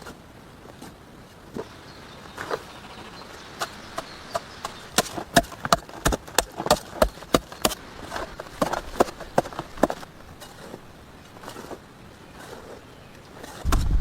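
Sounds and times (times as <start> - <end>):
hand tool chopping wood: 3.6 - 10.8.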